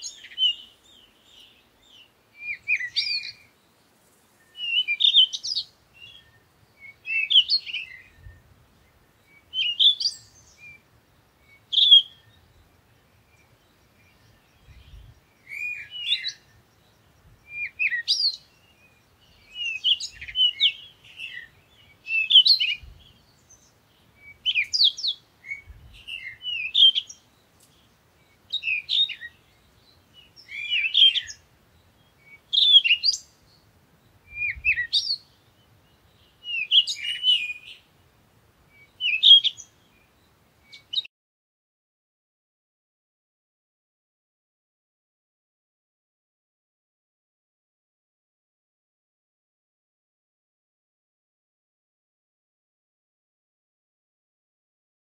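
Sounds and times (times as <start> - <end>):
small bird chirping: 0.0 - 37.9, 38.8 - 41.1.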